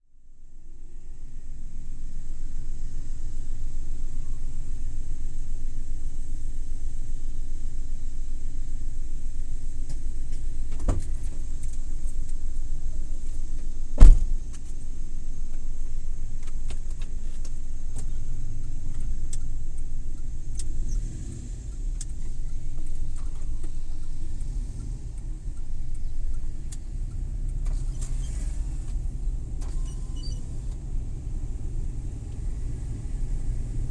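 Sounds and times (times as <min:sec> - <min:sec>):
van road and engine rumble: 0:00.0 - 0:33.9
light ticks and rattles: 0:01.9 - 0:33.9
sharp thump: 0:14.0 - 0:14.6.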